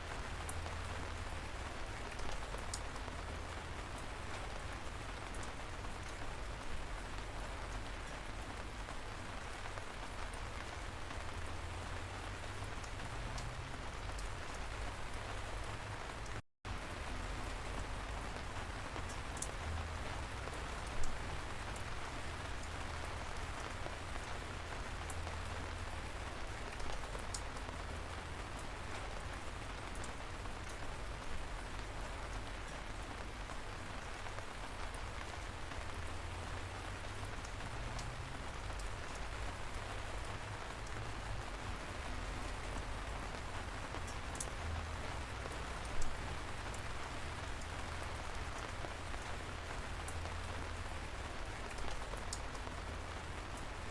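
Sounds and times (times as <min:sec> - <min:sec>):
light rain pattering: 0:00.0 - 0:53.9
single raindrops ticking: 0:34.7 - 0:53.1.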